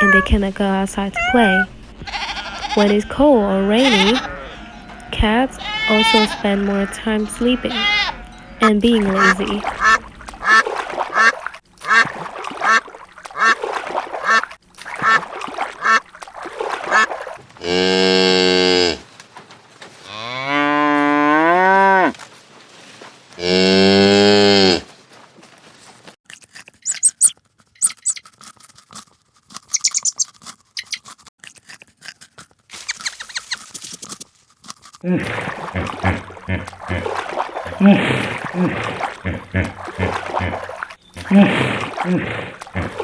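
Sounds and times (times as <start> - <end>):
cow mooing: 1.2 - 10.6, 17.6 - 19.0, 20.0 - 22.1, 23.4 - 24.8, 35.1 - 43.0
ducks quacking: 1.2 - 17.4, 35.1 - 43.0.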